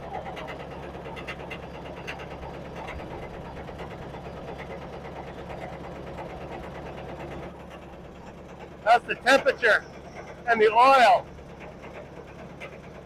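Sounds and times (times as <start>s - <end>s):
combine engine drone: 0.0s - 13.0s
fast even machine clatter: 11.3s - 13.0s.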